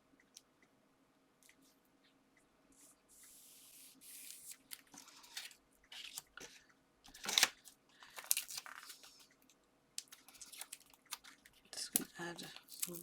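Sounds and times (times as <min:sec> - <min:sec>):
tape rustling and crackling: 0:07.1 - 0:13.0.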